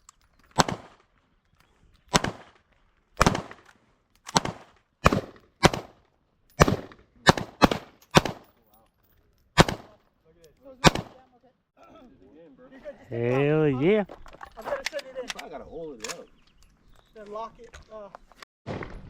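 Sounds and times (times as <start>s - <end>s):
pistol shots with ringing echo: 0.6s - 1.0s, 2.1s - 2.6s, 3.2s - 3.6s, 4.3s - 6.0s, 6.6s - 8.5s, 9.6s - 10.0s, 10.8s - 11.2s.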